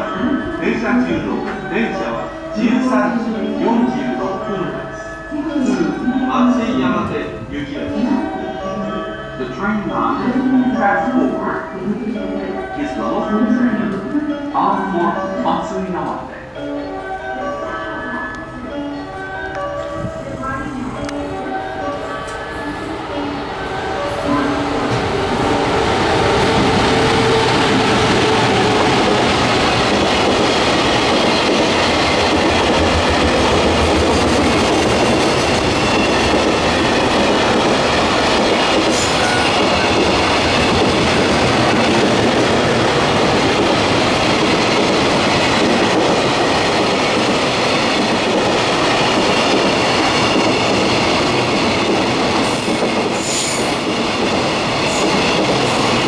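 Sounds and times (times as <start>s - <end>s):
freight train wheels rumbling: 18.9s - 56.0s.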